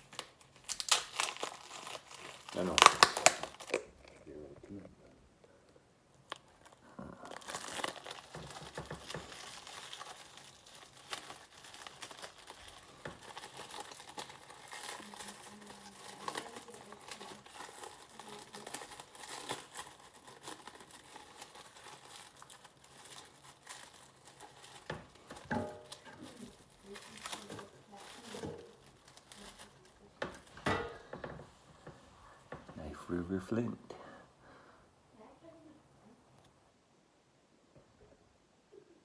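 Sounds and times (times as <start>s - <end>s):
packaging crinkling and tearing: 0.0s - 4.2s, 6.1s - 31.7s.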